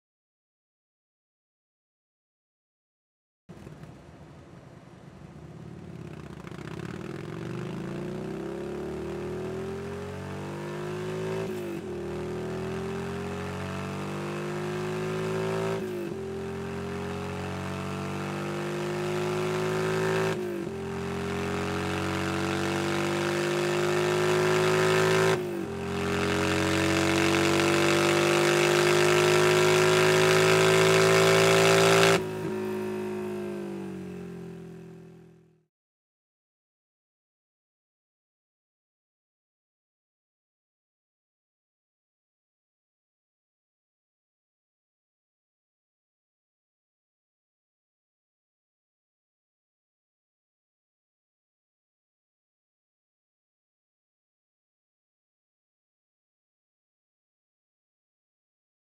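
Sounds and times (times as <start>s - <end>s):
motorcycle engine accelerating hard: 5.4s - 35.6s.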